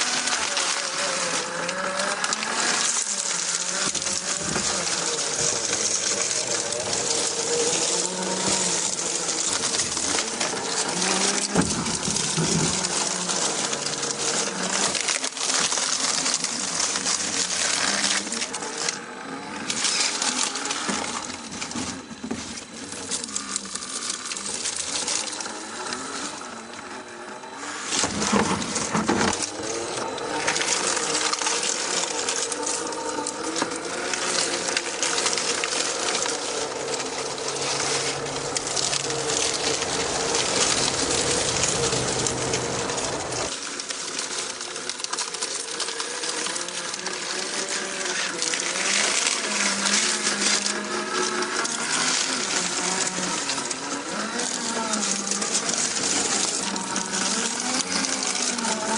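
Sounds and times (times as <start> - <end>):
toy car electric motor whining: 0.0 - 58.9
tyres crunching over rock: 0.0 - 58.9.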